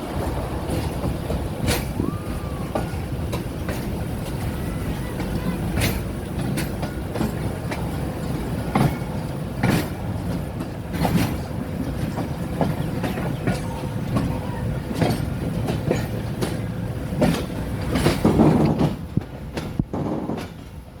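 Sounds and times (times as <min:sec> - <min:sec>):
train rumbling over bridge: 0:00.0 - 0:21.0
wheels clacking over rail joints: 0:00.0 - 0:21.0.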